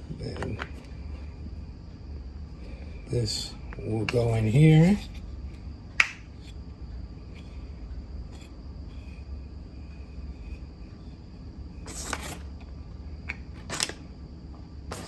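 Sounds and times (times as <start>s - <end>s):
faint high whine: 0.0s - 15.0s
steady low hum: 0.0s - 15.0s.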